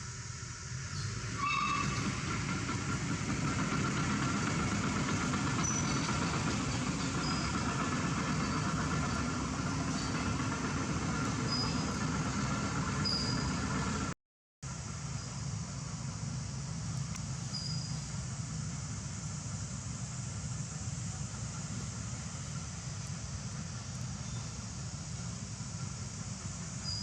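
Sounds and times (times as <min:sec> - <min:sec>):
traffic rumble: 0:00.0 - 0:27.0.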